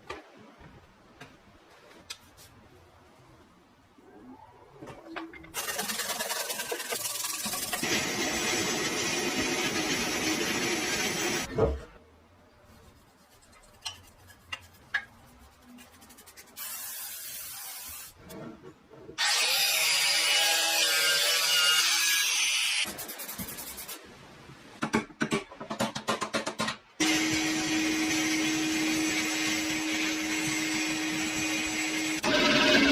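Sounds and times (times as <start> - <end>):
power tool on metal: 19.2 - 22.8, 27.0 - 32.9.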